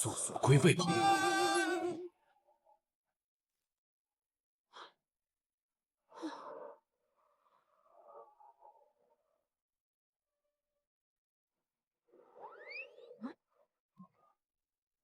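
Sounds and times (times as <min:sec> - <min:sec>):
person sighing: 0:00.6 - 0:02.0.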